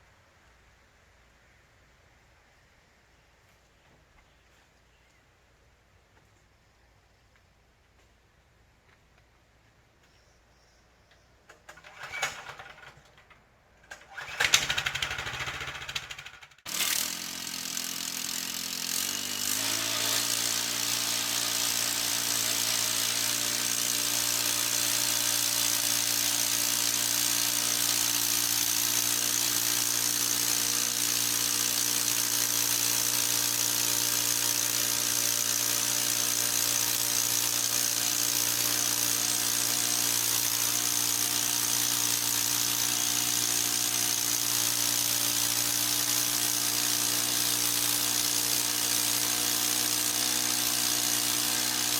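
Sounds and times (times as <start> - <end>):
small gasoline engine running: 11.7 - 13.2, 13.9 - 51.9.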